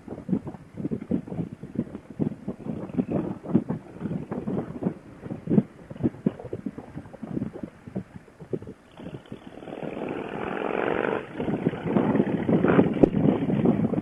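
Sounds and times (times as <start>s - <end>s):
wind buffeting microphone: 0.0s - 14.0s
motorcycle engine accelerating: 9.0s - 13.7s.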